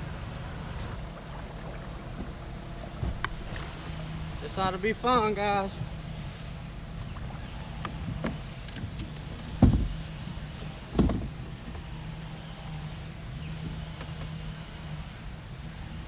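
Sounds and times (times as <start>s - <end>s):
vehicle engine idling: 0.0s - 16.0s
heavy thumps: 8.1s - 10.1s, 10.9s - 11.4s.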